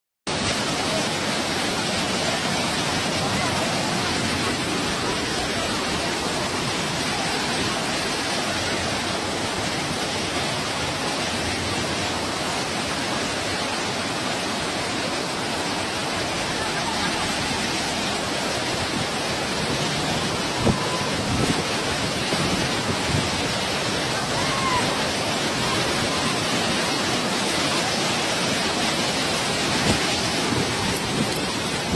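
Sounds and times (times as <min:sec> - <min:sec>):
heavy rain pouring: 0:00.3 - 0:31.9.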